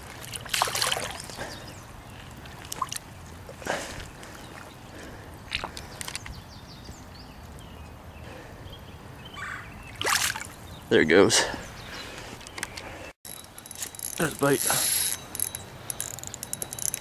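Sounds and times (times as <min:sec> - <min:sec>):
water splashing and sloshing: 0:00.0 - 0:06.2, 0:09.9 - 0:10.6.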